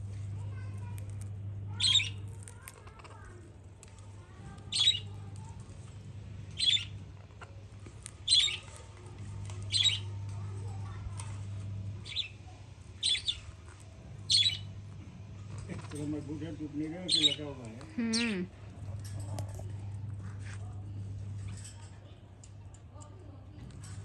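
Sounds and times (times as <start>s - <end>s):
steady low hum: 0.0s - 24.0s
parakeet squawking: 1.7s - 2.2s, 4.7s - 5.2s, 6.5s - 6.9s, 8.2s - 8.7s, 9.7s - 10.1s, 12.0s - 12.4s, 13.0s - 13.4s, 14.3s - 14.7s, 17.1s - 18.5s.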